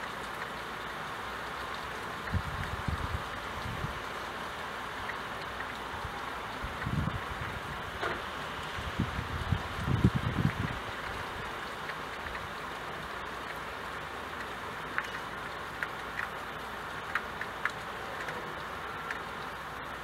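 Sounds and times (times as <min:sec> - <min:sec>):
rain falling: 0:00.0 - 0:20.0
raindrops ticking on window glass: 0:00.0 - 0:20.0
wind rumble on microphone: 0:02.3 - 0:04.1, 0:06.0 - 0:11.5.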